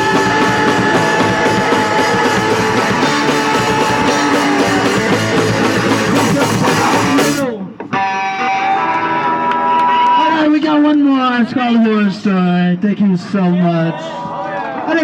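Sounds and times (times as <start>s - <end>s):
drum kit: 0.0s - 7.5s
loud electric guitar: 0.0s - 10.3s.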